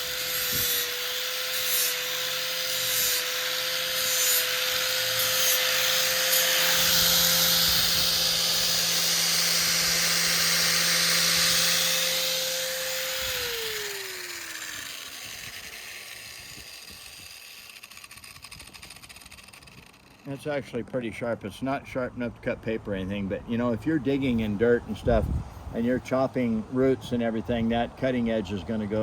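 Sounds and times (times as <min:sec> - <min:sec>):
grinder motor whine: 0:00.0 - 0:20.3
grinding on metal blade: 0:00.0 - 0:20.6.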